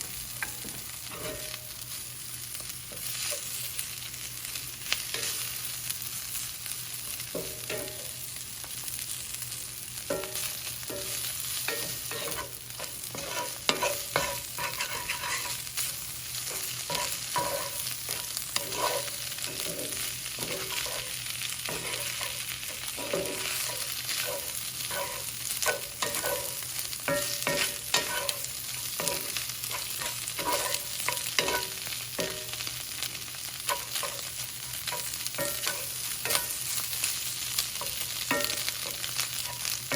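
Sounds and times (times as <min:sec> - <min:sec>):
food sizzling in a pan: 0:00.0 - 0:39.9
spatula scraping a pan: 0:10.1 - 0:32.6, 0:33.6 - 0:39.9.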